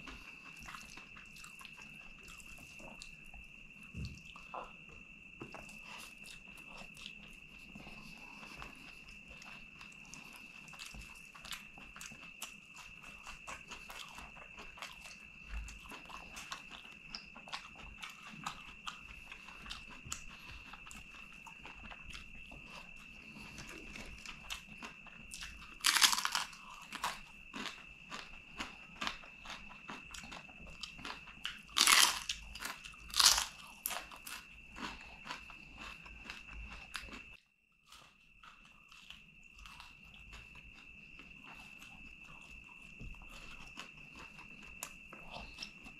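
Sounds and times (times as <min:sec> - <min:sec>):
chewing with wet clicks: 0:00.0 - 0:45.9
crisp crunches: 0:25.8 - 0:27.8, 0:31.6 - 0:35.4.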